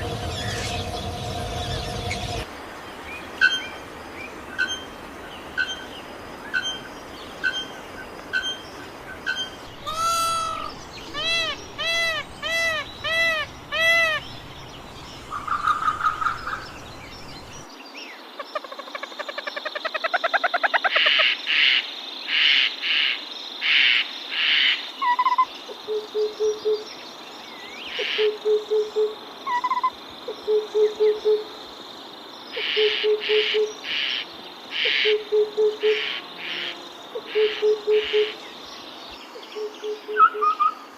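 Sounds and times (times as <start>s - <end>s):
rapid rising bird notes: 0.0s - 2.5s
ringing bird calls: 6.5s - 17.6s
loud high-pitched bird bursts: 9.8s - 14.2s.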